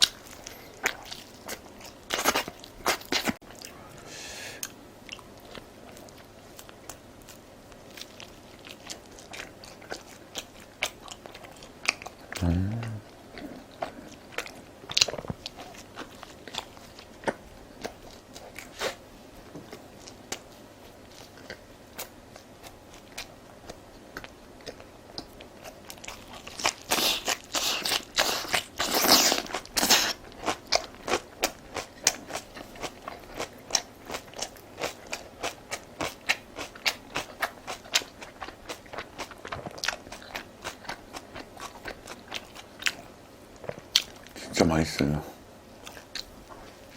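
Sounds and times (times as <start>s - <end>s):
chewing and biting food: 0.0s - 3.8s, 4.6s - 44.4s, 45.8s - 46.9s
low hum from eater: 0.0s - 46.9s.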